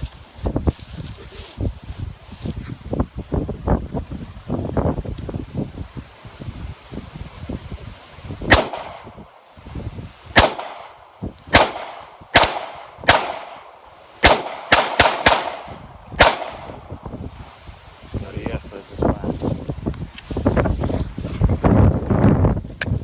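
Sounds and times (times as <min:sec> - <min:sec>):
pistol shots echoing: 0:08.5 - 0:09.1, 0:10.4 - 0:16.8.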